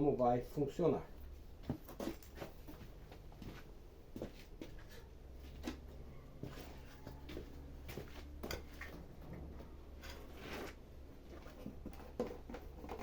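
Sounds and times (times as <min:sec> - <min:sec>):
small objects knocking and rustling: 0:10.0 - 0:13.0.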